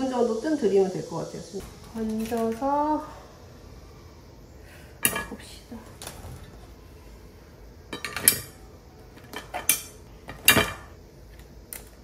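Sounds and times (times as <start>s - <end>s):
cookware clattering: 5.0s - 5.4s, 7.9s - 8.6s, 9.3s - 10.9s.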